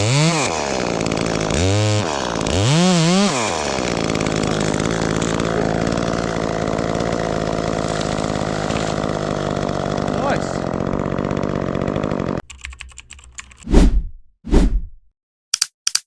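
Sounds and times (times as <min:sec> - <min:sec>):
chainsaw revving: 0:00.0 - 0:12.4.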